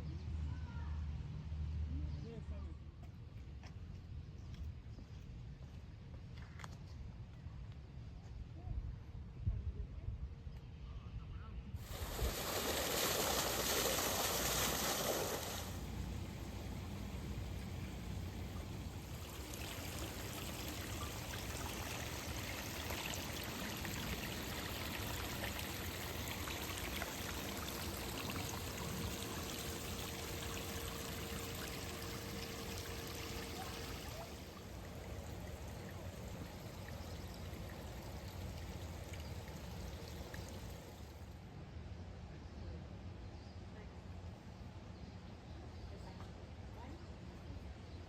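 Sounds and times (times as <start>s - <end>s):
running water splashing: 11.8s - 41.2s.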